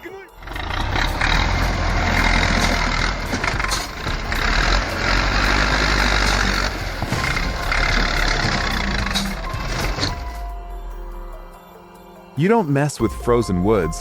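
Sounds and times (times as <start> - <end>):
tractor engine droning: 0.1 - 11.5.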